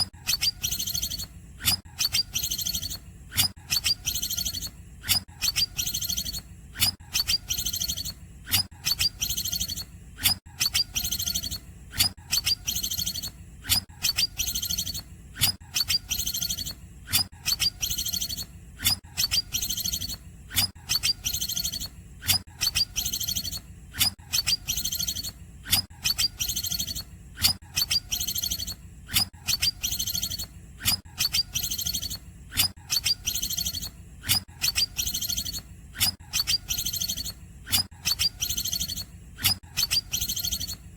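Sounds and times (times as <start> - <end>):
bird chirping and trilling: 0.0 - 9.9, 10.6 - 40.8
steady low hum: 24.7 - 40.9.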